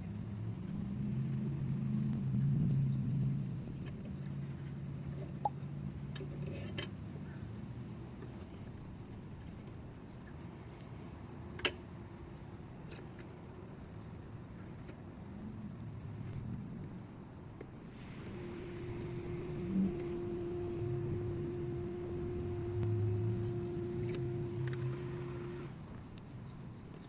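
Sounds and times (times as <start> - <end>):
low hum: 17.8 - 26.2.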